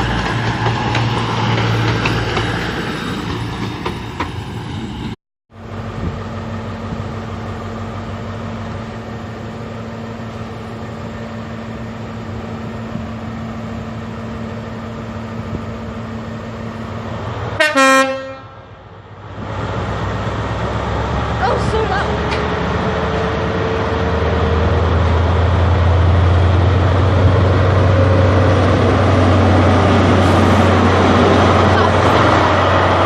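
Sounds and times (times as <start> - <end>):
diesel train engine hum: 0.0 - 33.0
train horn blast: 17.6 - 18.7.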